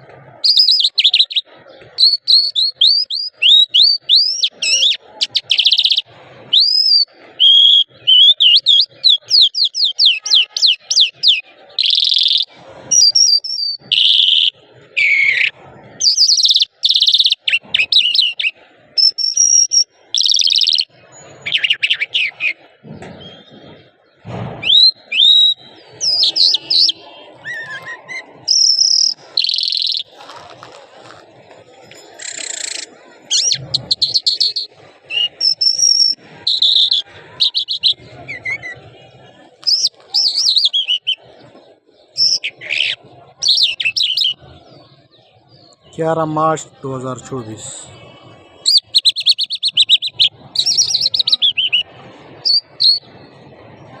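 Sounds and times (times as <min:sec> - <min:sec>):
lark singing: 0:00.4 - 0:22.6, 0:24.6 - 0:30.8, 0:31.9 - 0:38.7, 0:39.6 - 0:41.2, 0:48.6 - 0:51.8.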